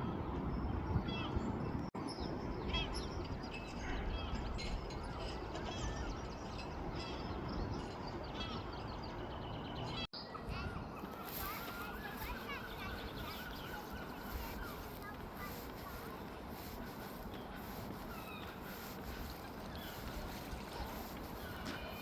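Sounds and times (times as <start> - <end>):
wild birds chirping: 0.2 - 22.0.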